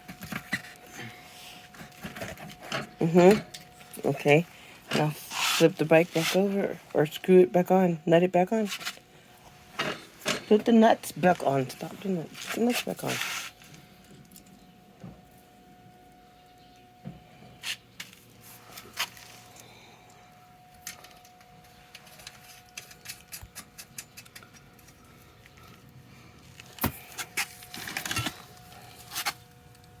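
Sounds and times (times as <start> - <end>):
metallic clinks of tools and bolts: 20.7 - 25.7.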